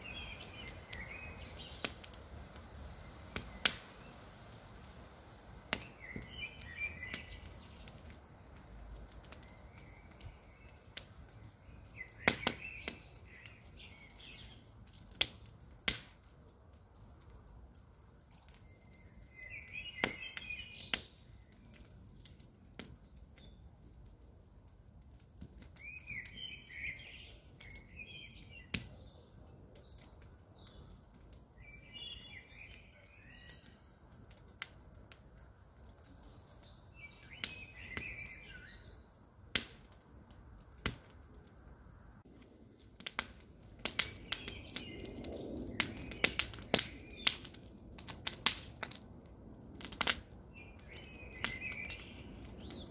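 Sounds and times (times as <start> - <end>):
birds twittering: 0.0 - 2.2, 5.7 - 8.2, 9.0 - 14.7, 18.4 - 23.7, 25.8 - 34.4, 36.0 - 39.4, 43.8 - 47.6, 50.5 - 52.9
burning wood popping: 0.0 - 52.9
campfire crackling: 0.0 - 52.9.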